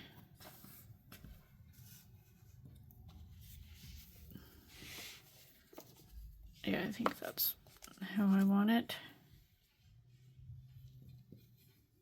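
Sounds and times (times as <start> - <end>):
hands rustling craft materials: 0.0 - 8.8.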